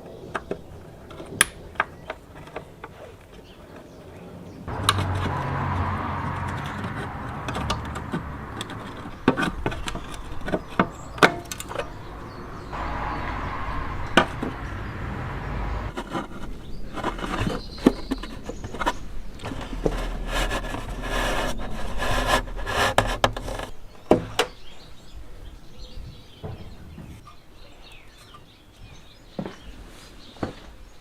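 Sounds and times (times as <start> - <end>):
scraping and rustling: 4.7 - 23.9.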